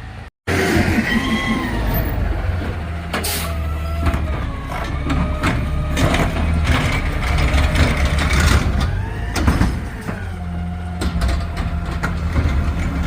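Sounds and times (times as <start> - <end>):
truck engine rumbling: 0.0 - 13.0
clanks and knocks: 4.0 - 10.3, 11.0 - 13.0.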